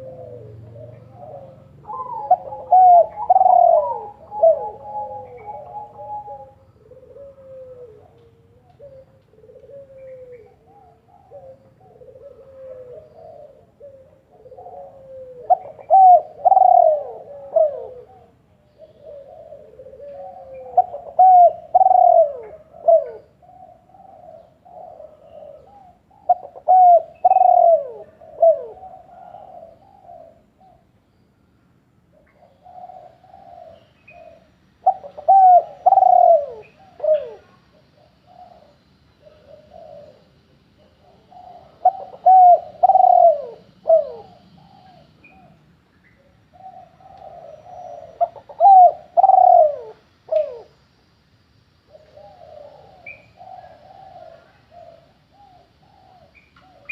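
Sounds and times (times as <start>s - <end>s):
bird calling in low notes: 0.0s - 31.3s, 32.2s - 50.8s.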